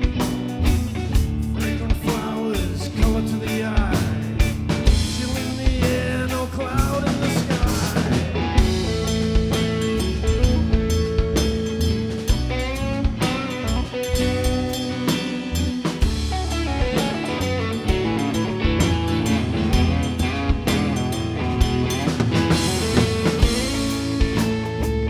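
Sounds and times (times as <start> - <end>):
drum kit beat: 0.0 - 25.0
guitar lead melody: 0.0 - 25.0.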